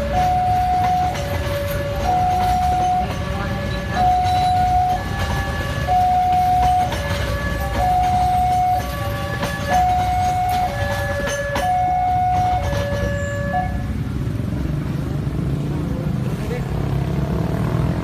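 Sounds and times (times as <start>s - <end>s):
two-tone crossing alarm: 0.0s - 14.0s
train wheels clanking: 0.0s - 14.3s
train rumbling past: 0.0s - 18.0s.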